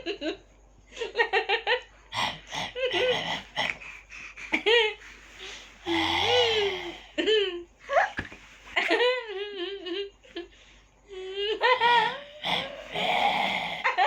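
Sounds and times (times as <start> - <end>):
baby giggling and squealing: 7.9 - 8.3.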